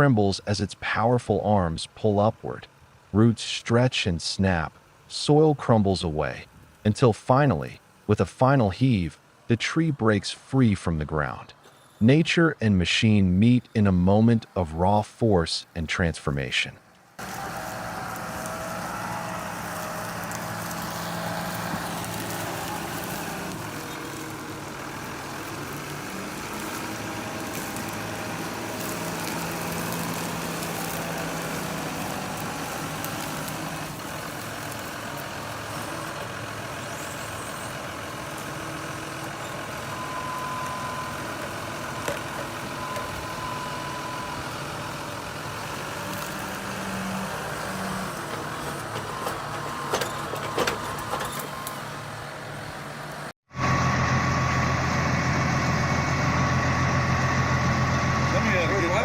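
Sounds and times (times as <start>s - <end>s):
heavy machine engine running: 17.2s - 59.0s.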